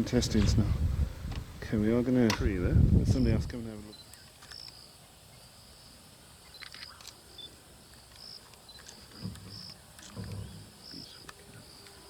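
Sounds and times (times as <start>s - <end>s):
faint insect chirps: 3.2s - 12.0s
sharp clicks: 6.5s - 12.0s.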